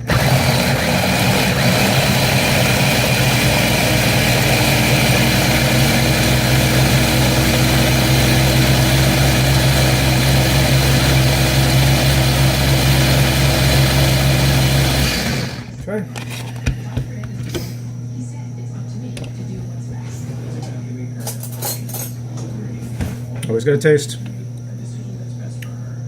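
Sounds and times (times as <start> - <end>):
blender running: 0.0 - 15.8.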